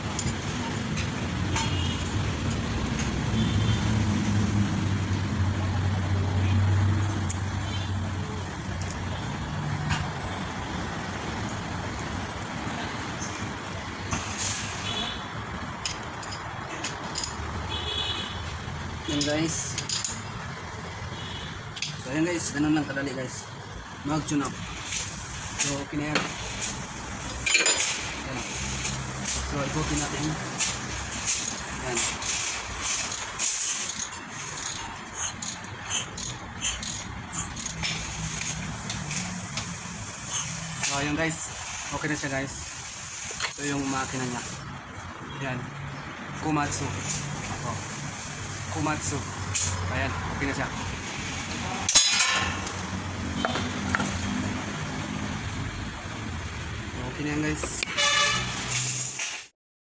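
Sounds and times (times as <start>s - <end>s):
vehicle noise: 0.0s - 59.5s
light metal clicks of tools: 0.1s - 3.2s, 7.0s - 7.5s, 8.5s - 9.0s, 15.8s - 17.5s, 19.1s - 20.3s, 21.8s - 22.1s, 24.5s - 42.3s.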